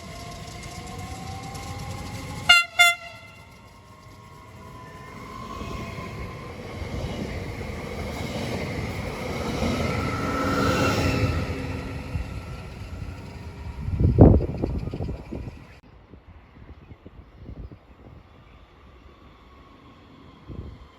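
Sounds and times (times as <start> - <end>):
train passing at speed: 0.0 - 20.9
loud low horn blast: 2.4 - 3.6.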